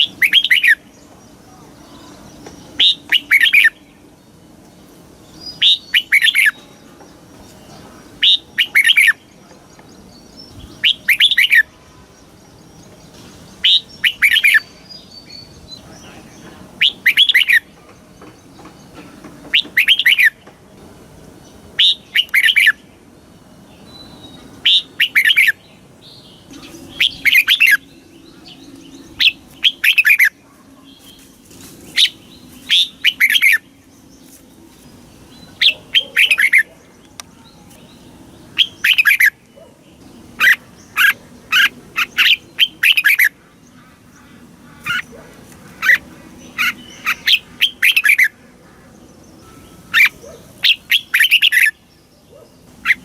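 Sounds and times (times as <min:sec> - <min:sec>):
bird singing whistled phrases: 0:26.5 - 0:30.3.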